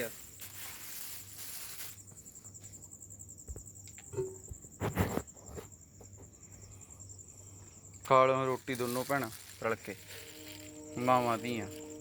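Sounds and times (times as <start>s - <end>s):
cricket chirring: 0.0s - 12.0s.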